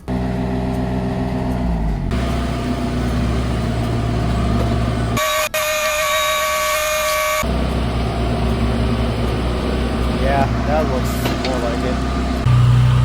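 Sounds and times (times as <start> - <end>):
construction machinery engine: 0.0 - 13.0
high-pitched multi-tone whine: 2.1 - 11.2.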